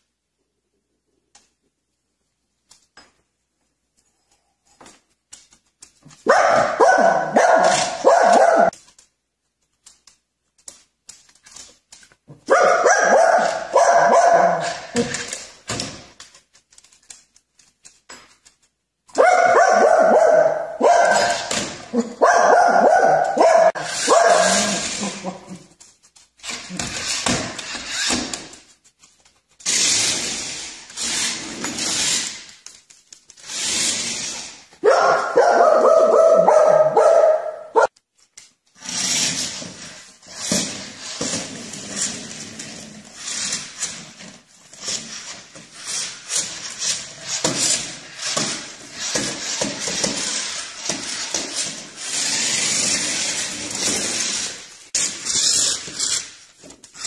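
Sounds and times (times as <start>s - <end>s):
dog barking: 6.3s - 8.8s, 12.5s - 15.0s, 19.2s - 24.9s, 34.8s - 37.9s.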